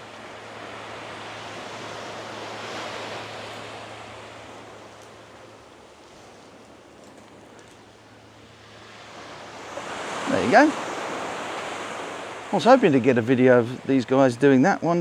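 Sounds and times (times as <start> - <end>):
wave washing in: 0.0 - 7.6, 8.2 - 15.0.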